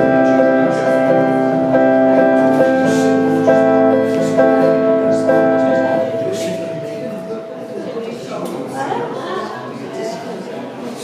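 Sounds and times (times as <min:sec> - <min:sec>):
instrumental tune of held notes: 0:00.0 - 0:08.2.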